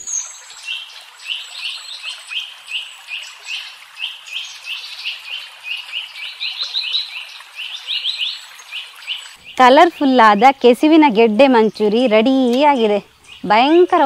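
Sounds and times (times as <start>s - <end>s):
small bird chirping: 11.6s - 14.0s.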